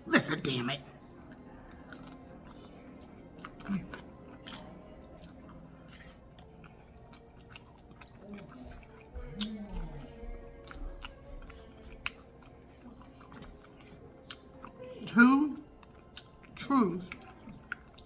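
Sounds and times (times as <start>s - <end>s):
faint background music: 0.0s - 18.0s
chewing crispy chicken: 0.2s - 18.0s
low humming voice: 8.0s - 15.8s.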